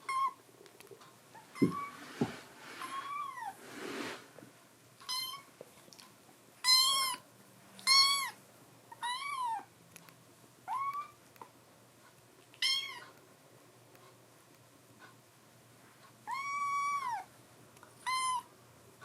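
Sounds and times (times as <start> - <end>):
kitten meowing: 1.6 - 2.0, 6.6 - 7.2, 7.8 - 8.4, 9.0 - 9.7, 10.7 - 11.2, 12.6 - 13.1, 16.3 - 17.3, 18.0 - 18.5.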